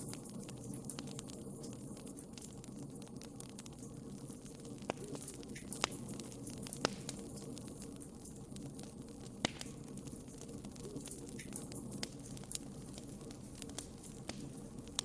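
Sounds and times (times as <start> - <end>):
fire crackling and popping: 0.0 - 15.0
fire flames rushing: 3.4 - 15.0.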